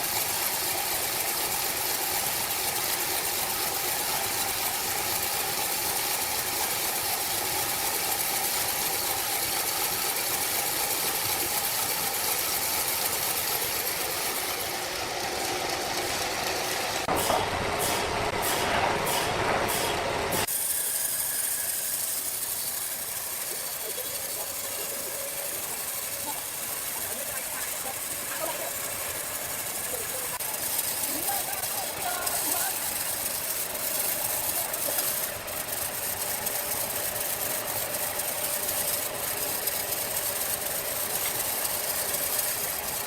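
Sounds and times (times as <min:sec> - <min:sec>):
sawmill machinery running: 0:00.0 - 0:43.0
quick repeating mechanical beat: 0:23.0 - 0:43.0.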